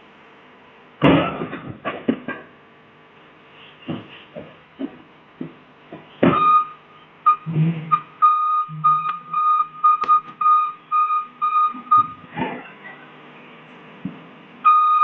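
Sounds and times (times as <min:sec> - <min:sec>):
electronic warning beeper: 0:06.3 - 0:12.2, 0:14.6 - 0:15.0.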